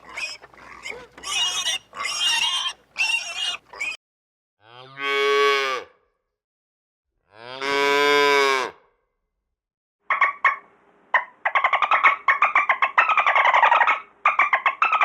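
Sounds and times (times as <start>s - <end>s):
harsh animal squeals: 0.0s - 4.0s.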